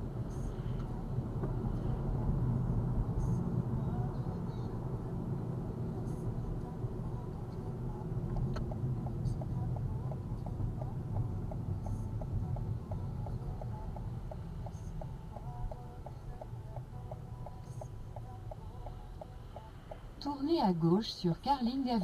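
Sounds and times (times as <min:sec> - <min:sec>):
car engine and tyres rumbling: 0:00.0 - 0:22.0
turn signal ticking: 0:07.9 - 0:22.0.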